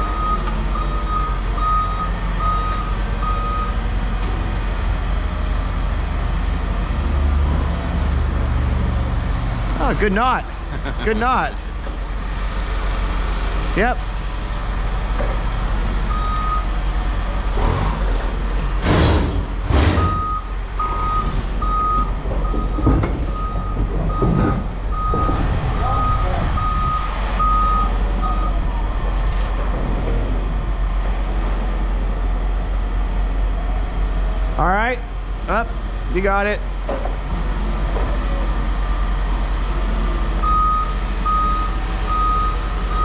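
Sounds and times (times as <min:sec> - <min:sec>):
reversing alarm beeping: 0:00.0 - 0:03.8, 0:16.1 - 0:16.7, 0:20.0 - 0:28.6, 0:40.4 - 0:43.0
diesel engine running: 0:00.0 - 0:43.0
loud knocks: 0:18.8 - 0:20.3, 0:22.0 - 0:25.6.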